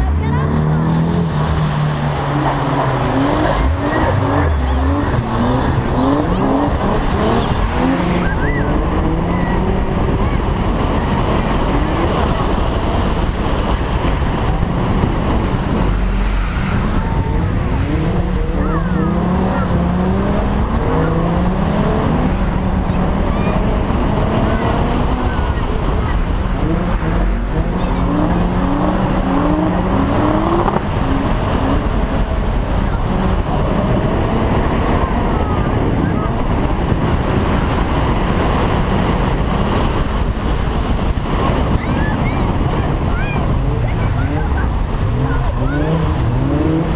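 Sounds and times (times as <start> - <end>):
car engine revving: 0.0 - 46.9
wind rumble on microphone: 0.0 - 46.9.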